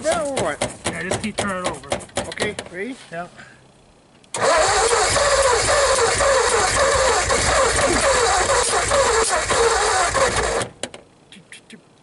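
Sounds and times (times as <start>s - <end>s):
engine cranking on starter motor: 4.3s - 11.0s.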